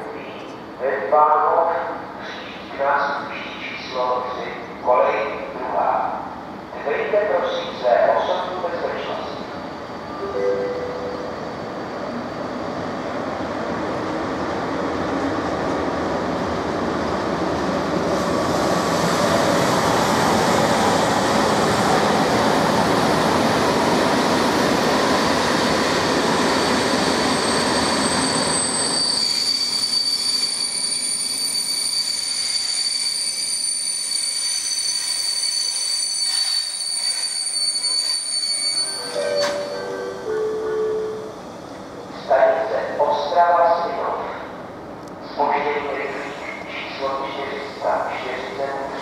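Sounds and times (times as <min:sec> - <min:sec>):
train rolling on rails: 0:00.0 - 0:49.0
train brakes squealing: 0:26.4 - 0:41.7.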